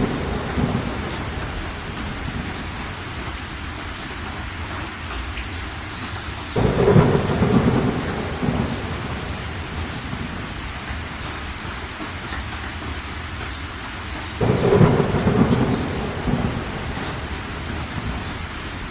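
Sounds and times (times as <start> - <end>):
thunder rumbling: 0.0 - 4.4, 6.5 - 11.9, 14.4 - 18.9
steady rain: 0.0 - 18.9.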